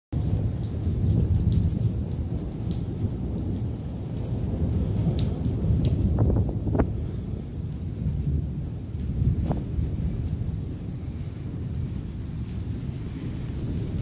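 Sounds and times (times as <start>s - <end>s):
rain falling: 0.1s - 14.0s
deep steady rumble: 2.9s - 14.0s.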